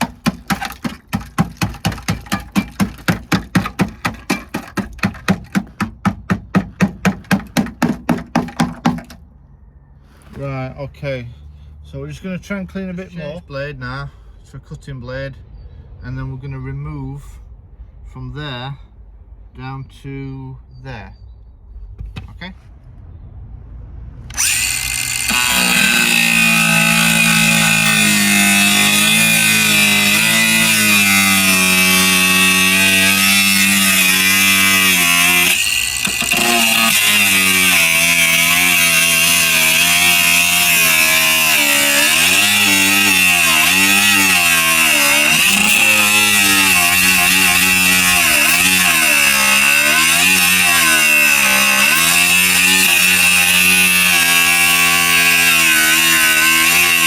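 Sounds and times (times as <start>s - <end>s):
angle grinder cutting metal: 24.3s - 57.0s.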